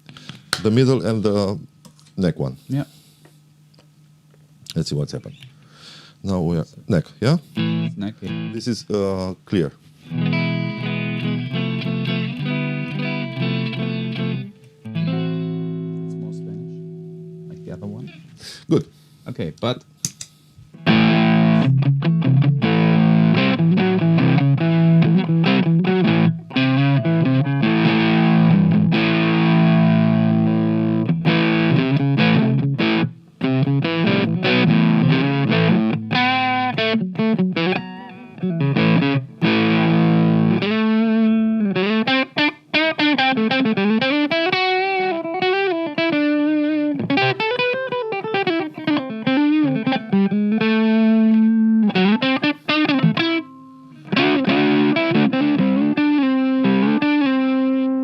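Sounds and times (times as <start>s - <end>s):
distorted electric guitar: 10.0s - 18.3s, 20.8s - 58.0s.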